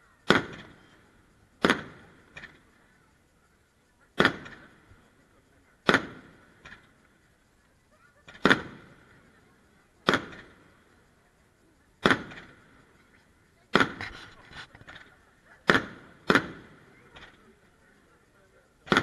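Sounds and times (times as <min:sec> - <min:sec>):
firework bangs echoing: 0:00.2 - 0:02.8, 0:04.1 - 0:05.2, 0:05.8 - 0:07.0, 0:08.2 - 0:11.2, 0:12.0 - 0:12.9, 0:13.7 - 0:14.2, 0:15.6 - 0:17.5, 0:18.8 - 0:19.0
small firework cracks: 0:00.2 - 0:19.0.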